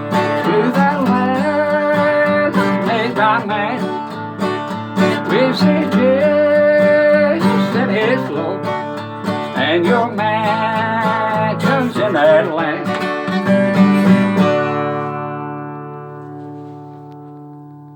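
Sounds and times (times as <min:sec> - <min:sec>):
man singing: 0:00.0 - 0:13.4
acoustic guitar strumming: 0:00.0 - 0:17.9.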